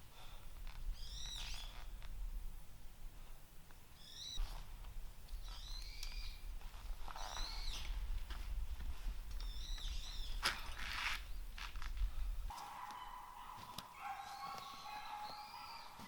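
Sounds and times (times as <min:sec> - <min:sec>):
birds chirping: 0:00.9 - 0:02.0, 0:03.9 - 0:04.5, 0:05.3 - 0:08.1, 0:09.3 - 0:11.8, 0:12.5 - 0:16.0
steady low rumble: 0:01.8 - 0:05.6, 0:11.2 - 0:12.5.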